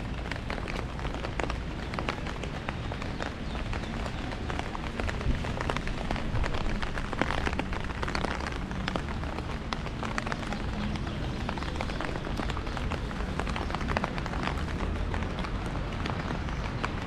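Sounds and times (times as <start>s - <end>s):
heavy rain on an umbrella: 0.0s - 17.0s.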